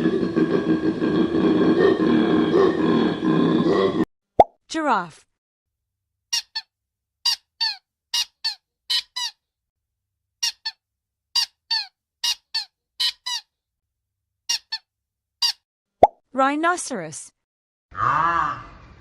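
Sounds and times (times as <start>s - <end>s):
giraffe high-pitched squeaks: 6.4s - 6.7s, 7.3s - 9.4s, 10.4s - 10.8s, 11.4s - 13.5s, 14.5s - 14.8s.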